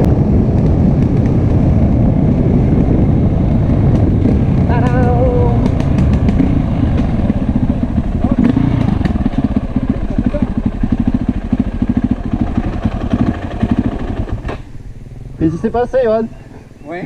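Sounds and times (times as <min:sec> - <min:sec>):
wind noise on microphone: 0:00.0 - 0:16.8
motorcycle engine: 0:00.0 - 0:17.0.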